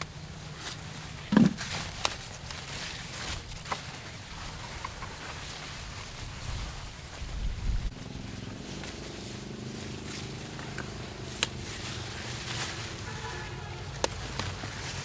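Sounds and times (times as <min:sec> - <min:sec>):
dull thump: 0:01.3 - 0:01.8.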